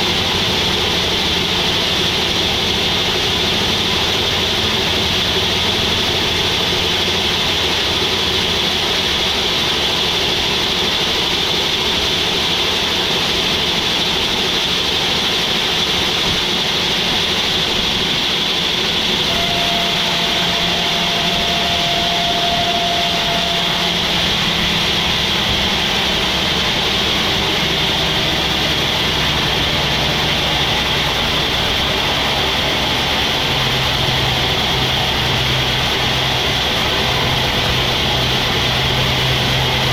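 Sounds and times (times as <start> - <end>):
sawmill machinery running: 0.0 - 39.9
steady machine whine: 0.0 - 39.9.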